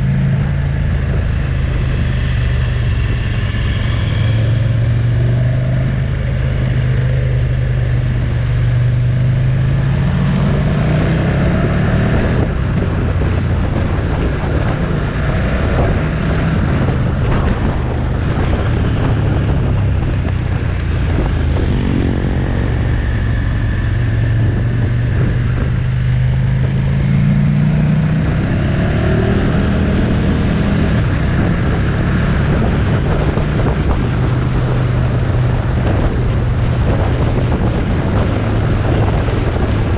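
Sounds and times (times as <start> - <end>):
motorcycle engine running: 0.0 - 39.9
road noise: 0.0 - 39.9
wind rushing: 9.1 - 39.9.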